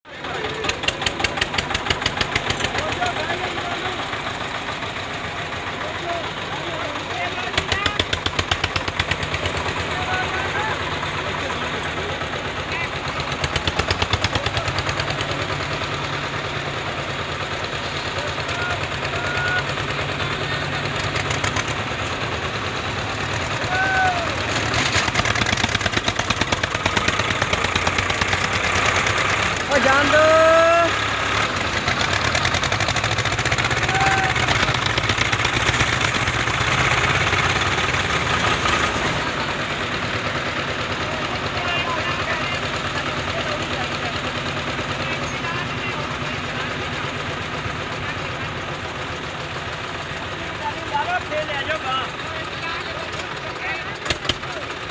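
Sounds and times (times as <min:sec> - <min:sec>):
tractor diesel engines chugging: 0:00.0 - 0:54.9.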